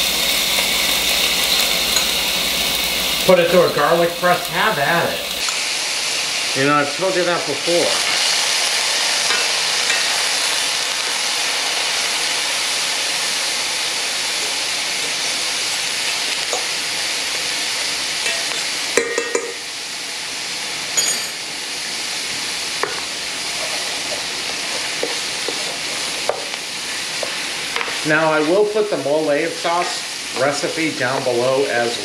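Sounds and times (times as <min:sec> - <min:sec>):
onion and garlic sizzling in oil: 0:00.0 - 0:32.0
utensil scraping on pan: 0:22.9 - 0:28.7.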